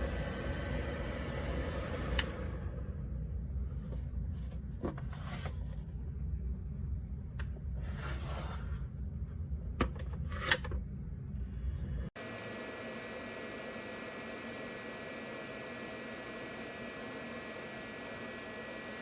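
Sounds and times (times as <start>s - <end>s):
steady low rumble: 0.0s - 12.2s.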